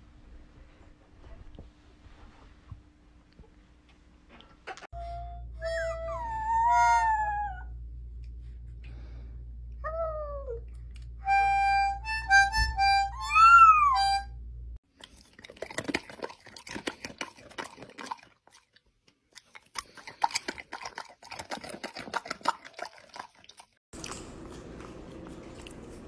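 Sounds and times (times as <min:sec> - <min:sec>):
toy harmonica: 0:05.0 - 0:07.0, 0:11.2 - 0:14.3
puppy howling: 0:06.1 - 0:07.8, 0:13.2 - 0:14.2
dog crunching a hard treat: 0:14.9 - 0:18.7, 0:19.4 - 0:26.0.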